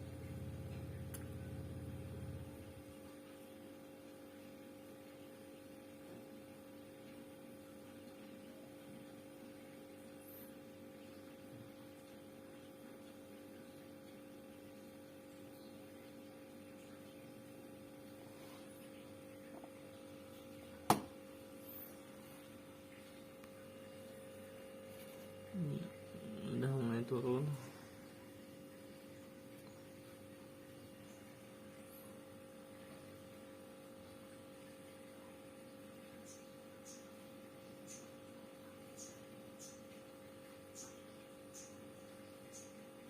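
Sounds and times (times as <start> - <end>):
refrigerator humming: 0.0 - 43.0.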